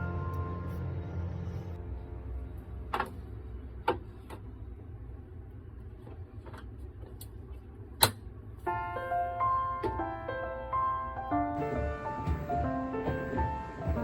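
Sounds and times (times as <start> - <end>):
gentle piano music: 0.0 - 3.5, 8.7 - 14.0
low steady hum: 0.0 - 14.0.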